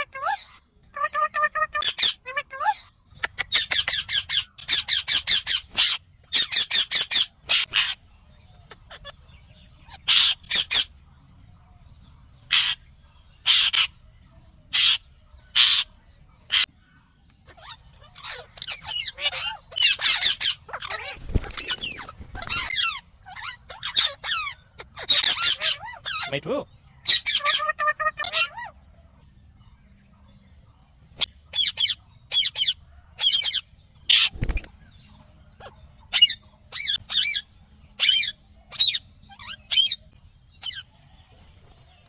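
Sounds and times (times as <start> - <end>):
parrot chattering calls: 0.0 - 8.0, 9.8 - 10.9, 17.5 - 26.4, 27.0 - 28.8.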